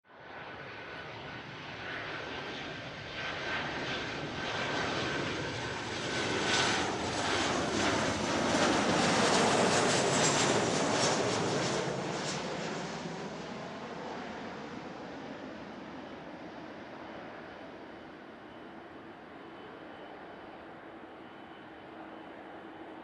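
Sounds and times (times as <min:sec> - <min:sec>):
jet engines roaring: 0:00.3 - 0:23.0
thin steady whine: 0:13.6 - 0:23.0.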